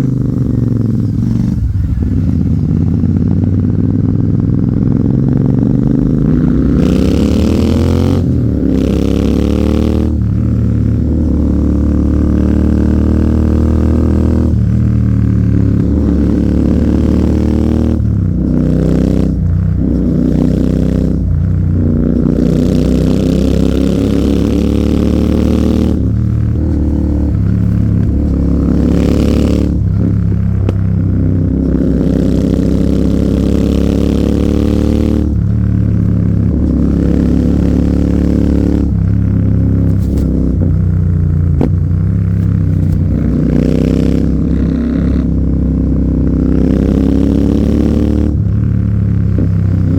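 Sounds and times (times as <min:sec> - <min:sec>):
motorcycle engine accelerating: 0:00.0 - 0:49.9.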